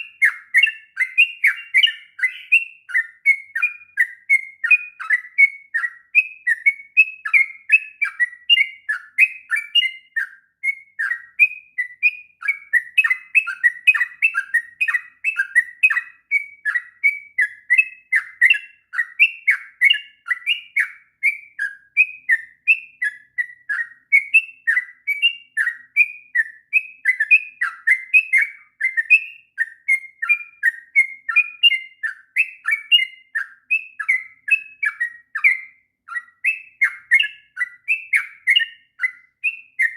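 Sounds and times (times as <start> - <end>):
bird singing chattering notes: 0.0 - 10.3, 10.9 - 26.0.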